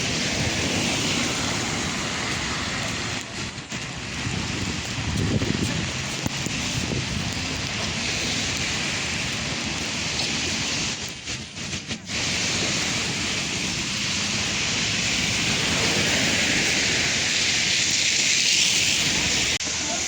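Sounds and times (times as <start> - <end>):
train rushing at speed: 0.0 - 20.0.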